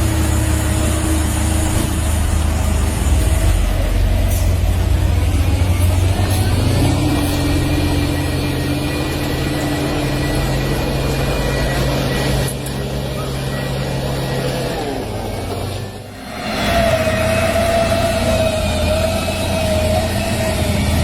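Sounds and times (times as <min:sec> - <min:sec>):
vehicle engine hum: 0:00.0 - 0:21.0.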